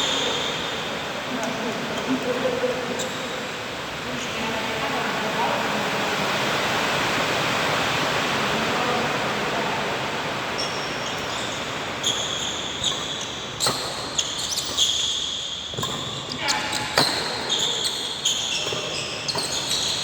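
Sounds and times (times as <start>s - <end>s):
shoes squeaking on court: 0.0s - 3.7s, 10.5s - 20.0s
crowd and hall noise: 0.0s - 20.0s
racket hitting shuttlecock: 10.6s - 20.0s.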